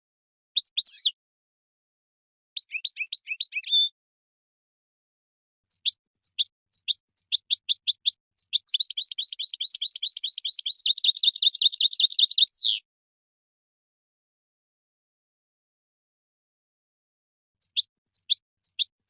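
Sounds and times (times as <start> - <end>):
goldfinch singing: 0.6 - 1.2, 2.6 - 3.9, 5.7 - 12.8, 17.6 - 18.9.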